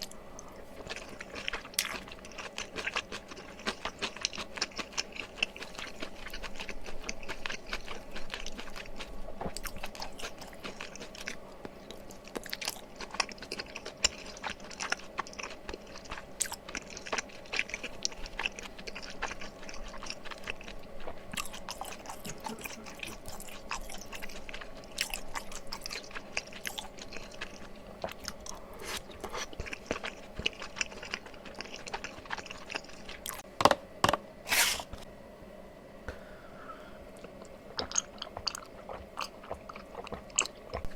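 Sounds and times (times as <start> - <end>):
close chewing: 0.0 - 33.4, 37.2 - 40.9
wet mouth sounds: 37.2 - 40.9.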